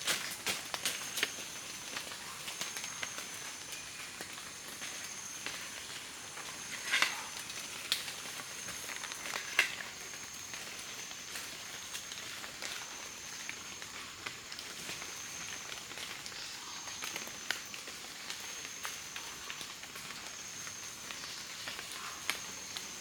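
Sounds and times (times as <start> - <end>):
steady high hiss: 0.0 - 19.4.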